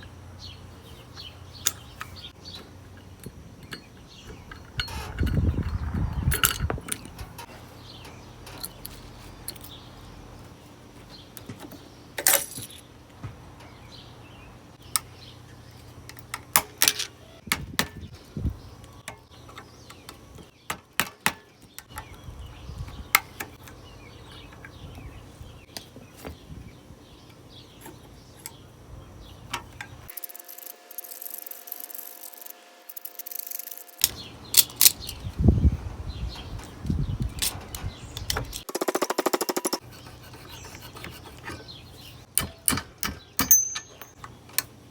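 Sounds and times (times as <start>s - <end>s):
metal tools clinking and clanking: 1.6s - 9.8s, 12.2s - 12.9s, 42.4s - 44.7s.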